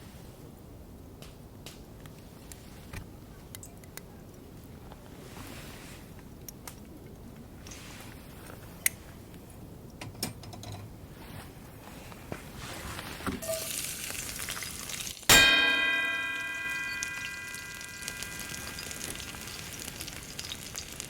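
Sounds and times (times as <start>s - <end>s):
hissing sizzle: 13.4s - 21.0s
sharp metallic clang: 15.3s - 19.8s.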